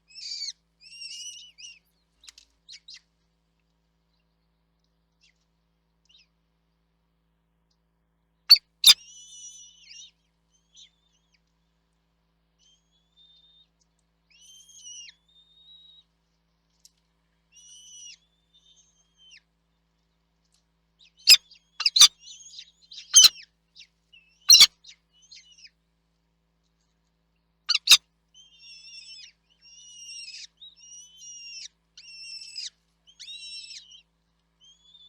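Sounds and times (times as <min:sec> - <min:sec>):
small birds calling: 0:21.3 - 0:22.1, 0:27.7 - 0:28.0.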